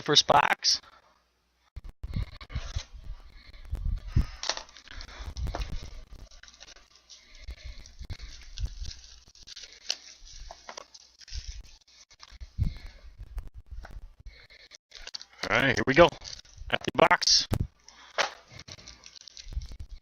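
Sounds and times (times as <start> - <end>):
packaging rustling and tearing: 4.2 - 12.5, 16.0 - 16.7, 17.8 - 20.0.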